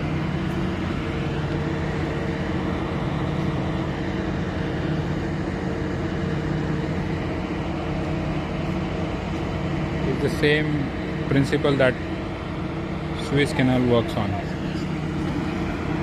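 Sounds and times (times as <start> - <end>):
diesel engines droning: 0.0 - 16.0.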